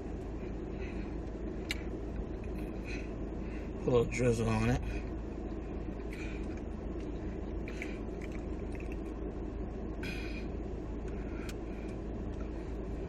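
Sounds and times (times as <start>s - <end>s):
low background rumble: 0.0s - 13.0s
chip crunching while chewed: 7.7s - 9.2s.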